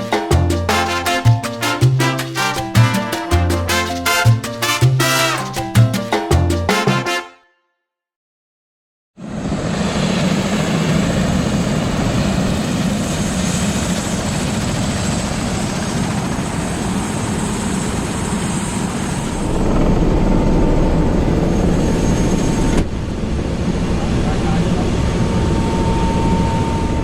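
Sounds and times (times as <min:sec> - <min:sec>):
helicopter rotor and engine: 0:09.2 - 0:27.0.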